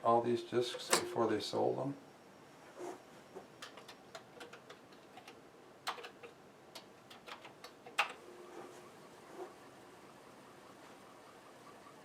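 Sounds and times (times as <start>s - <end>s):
computer keyboard keys clicking: 3.6s - 8.2s.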